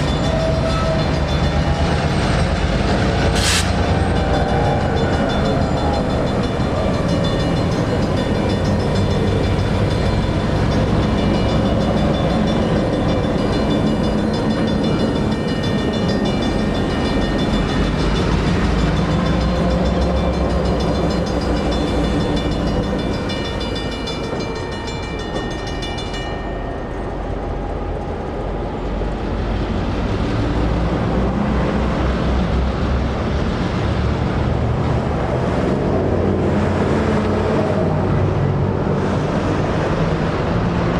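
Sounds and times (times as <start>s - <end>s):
crossing signal bell ringing: 0.0s - 27.7s.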